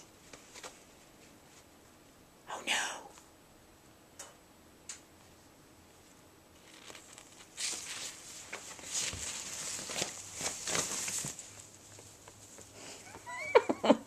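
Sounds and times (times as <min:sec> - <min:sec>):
fabric rustling and crinkling: 0:00.1 - 0:01.8, 0:06.0 - 0:12.8.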